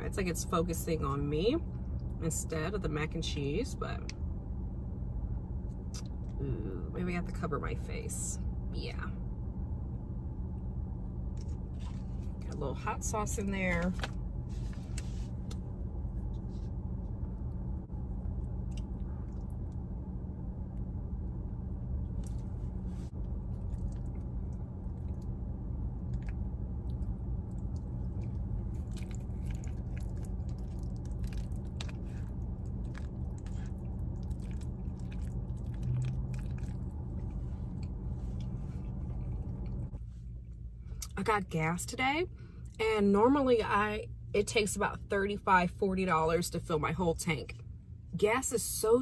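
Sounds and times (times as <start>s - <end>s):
steady low hum: 0.0s - 49.0s
close-up chewing: 23.2s - 40.0s.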